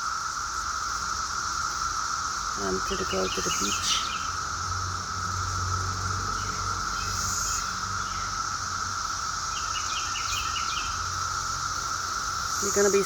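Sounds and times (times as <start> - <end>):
insects trilling: 0.0 - 13.0
bird chirping: 2.6 - 4.4, 6.3 - 8.4, 9.5 - 11.1.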